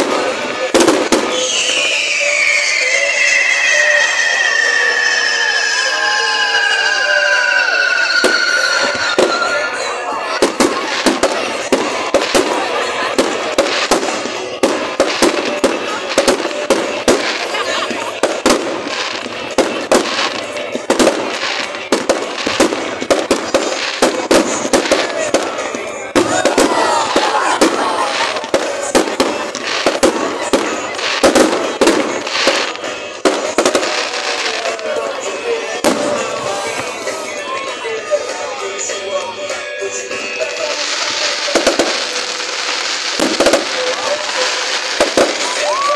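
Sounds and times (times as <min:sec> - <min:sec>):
fireworks bangs and cracks: 0:00.0 - 0:45.9
high wavering whistle: 0:01.2 - 0:10.4.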